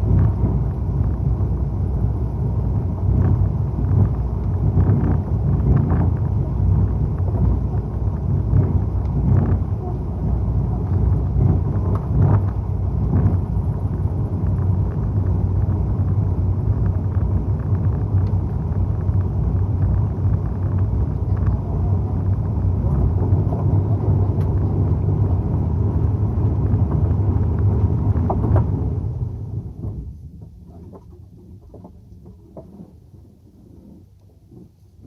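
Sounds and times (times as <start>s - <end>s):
boat engine rumbling: 0.0s - 35.0s.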